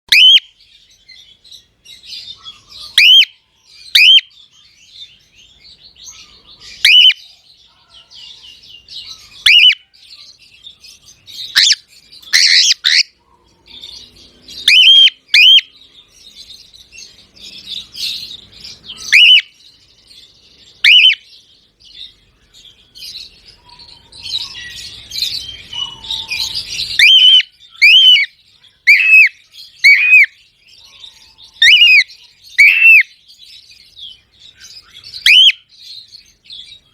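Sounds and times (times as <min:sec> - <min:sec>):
cockatiel whistled calls: 0:00.1 - 0:00.5, 0:02.2 - 0:04.3, 0:06.8 - 0:07.2, 0:09.4 - 0:09.8, 0:11.4 - 0:13.1, 0:14.6 - 0:15.7, 0:19.0 - 0:19.5, 0:20.8 - 0:21.2, 0:23.8 - 0:30.4, 0:31.6 - 0:33.1, 0:34.8 - 0:35.7.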